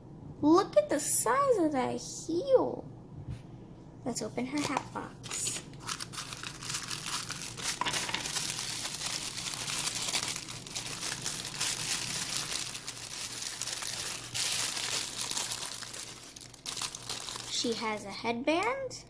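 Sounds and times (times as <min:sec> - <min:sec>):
packaging crinkling and tearing: 0:04.5 - 0:18.7.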